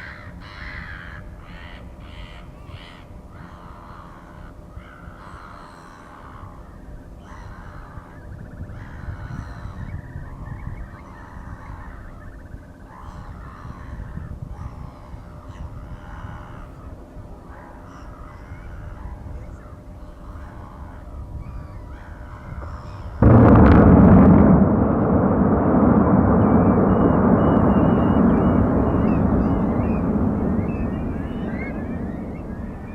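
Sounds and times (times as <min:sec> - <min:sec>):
steady low rumble: 0:23.2 - 0:32.9.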